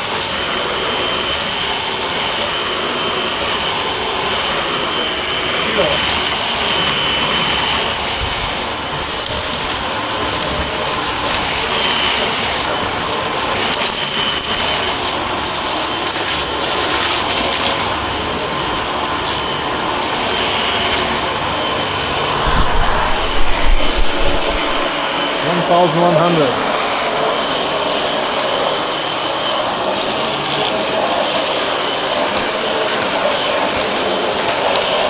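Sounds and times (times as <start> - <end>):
low rumbling: 22.1 - 25.0.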